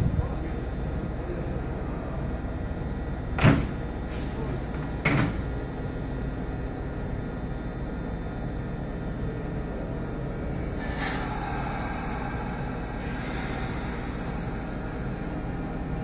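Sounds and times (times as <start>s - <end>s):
electric train humming: 0.0s - 16.0s
sliding doors closing: 3.3s - 5.6s.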